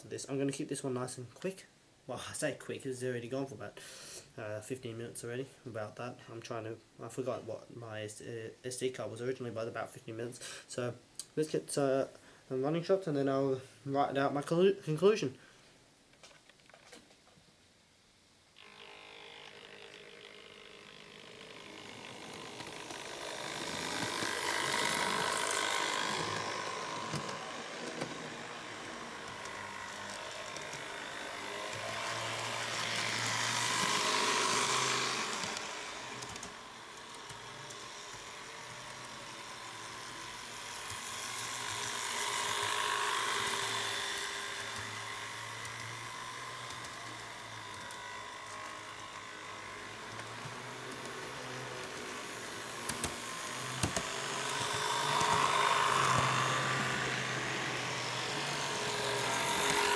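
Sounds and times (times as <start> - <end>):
model train motors whirring: 18.6 - 59.9
wheels on rails: 18.6 - 59.9.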